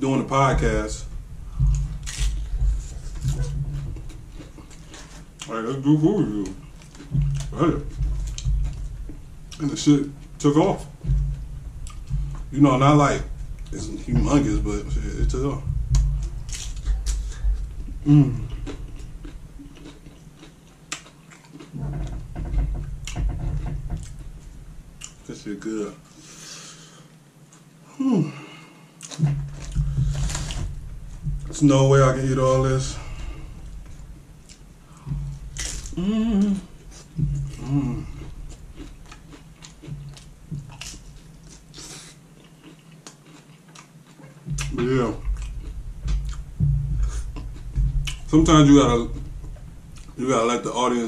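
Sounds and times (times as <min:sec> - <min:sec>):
chewing crunchy chips: 0:18.2 - 0:21.8, 0:37.2 - 0:45.6.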